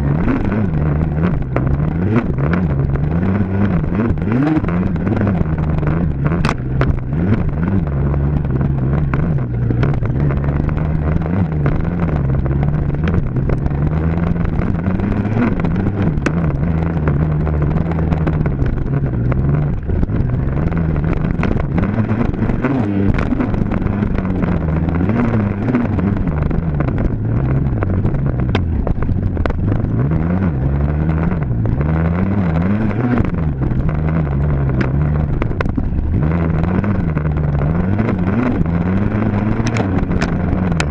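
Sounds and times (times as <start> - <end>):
dirt bike engine revving: 0.0 - 28.9, 29.7 - 40.9.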